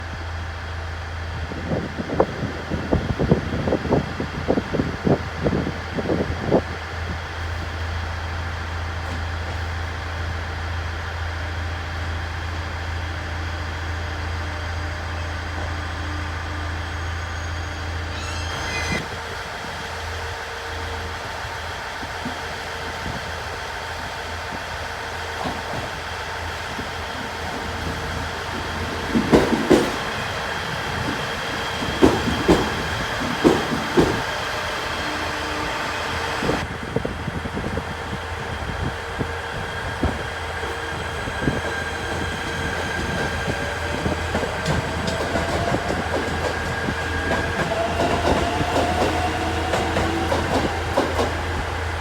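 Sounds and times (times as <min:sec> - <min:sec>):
train wheels knocking over rail joints: 0:25.1 - 0:35.6, 0:40.0 - 0:52.0.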